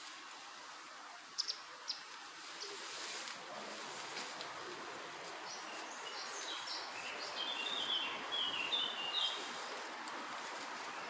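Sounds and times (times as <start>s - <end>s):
outdoor background hiss: 0.0s - 11.0s
small bird singing high chirps: 1.4s - 2.7s, 5.4s - 9.5s.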